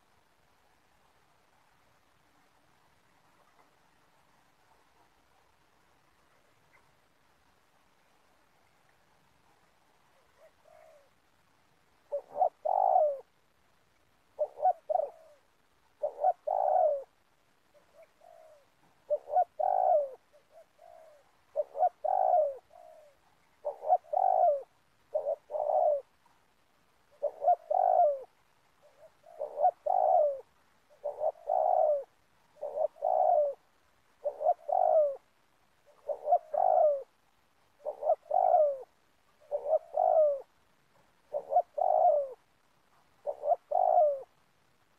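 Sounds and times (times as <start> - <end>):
dove cooing: 10.1 - 11.2, 12.0 - 13.4, 14.3 - 26.4, 27.1 - 44.4.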